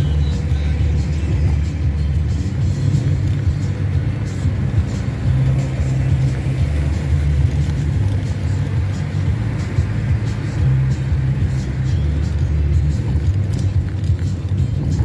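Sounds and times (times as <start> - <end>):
car interior road rumble: 0.0 - 15.0
music playing: 0.0 - 15.0.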